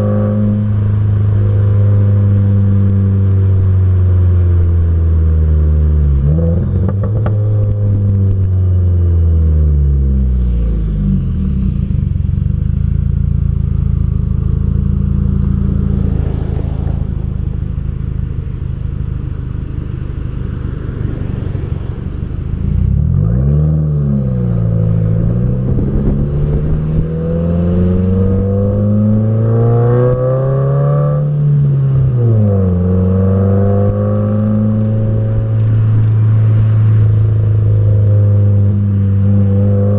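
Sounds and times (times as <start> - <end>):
car engine exhaust: 0.0 - 39.9
road noise: 0.0 - 39.9.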